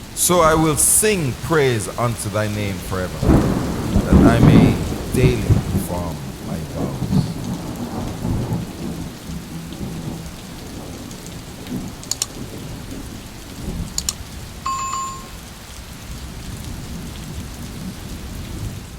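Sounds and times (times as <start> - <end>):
low rolling thunder: 0.0 - 14.6, 15.4 - 18.9
steady rain: 0.0 - 18.9
sharp clicks: 12.0 - 12.4, 14.0 - 14.2
short high ding: 14.7 - 15.4.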